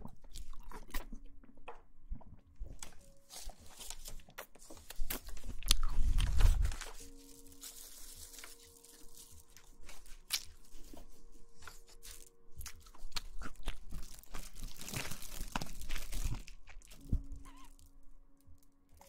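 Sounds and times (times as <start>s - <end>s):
crunching and crackling: 0.0s - 19.0s
soft rustle: 3.0s - 16.4s.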